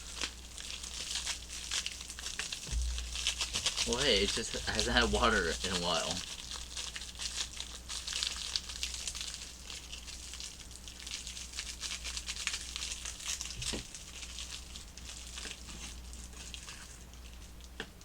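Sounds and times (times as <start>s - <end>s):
powder package crinkling: 0.0s - 17.6s.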